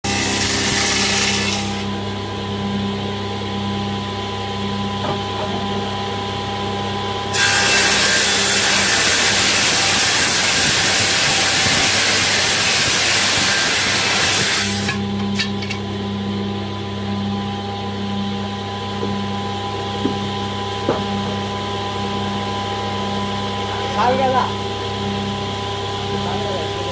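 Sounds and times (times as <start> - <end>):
saw cutting wood: 0.0 - 2.0, 7.3 - 15.8
woodworking machine motor humming: 0.0 - 26.9.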